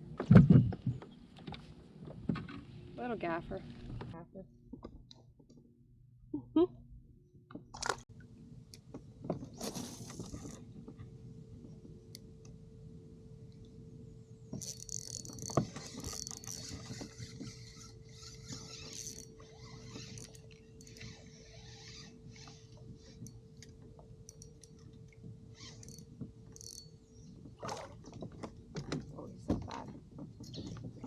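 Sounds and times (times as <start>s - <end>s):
faint steady hum: 5.9s - 30.4s.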